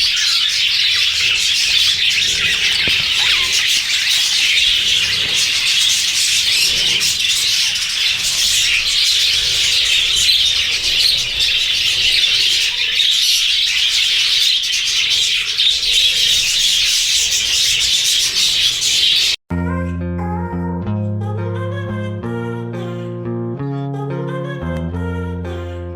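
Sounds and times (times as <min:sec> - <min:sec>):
budgies chattering and chirping: 0:00.0 - 0:19.4.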